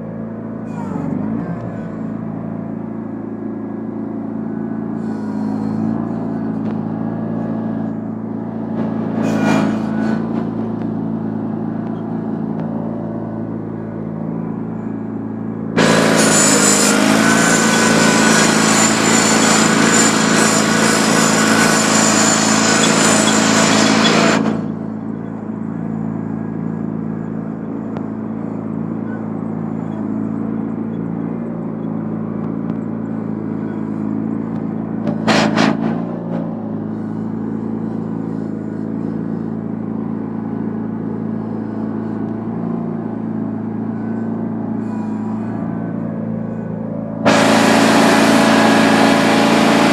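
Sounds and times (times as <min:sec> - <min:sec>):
garden tractor engine running: 0:00.0 - 0:49.9
loud rushing noise: 0:15.8 - 0:24.6, 0:47.2 - 0:49.9.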